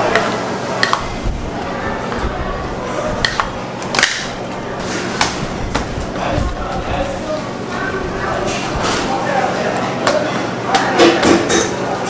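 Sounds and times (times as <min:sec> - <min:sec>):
steady low hum: 0:00.0 - 0:10.7
faint background voices: 0:00.0 - 0:12.0.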